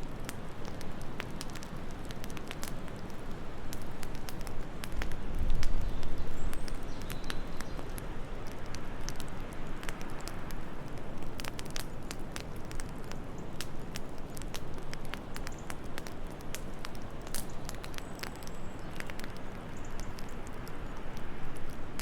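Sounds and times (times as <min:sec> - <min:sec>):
low rush of wind: 0:00.0 - 0:15.3
sharp pops of fire: 0:00.0 - 0:22.0
wood fire crackling: 0:00.0 - 0:22.0.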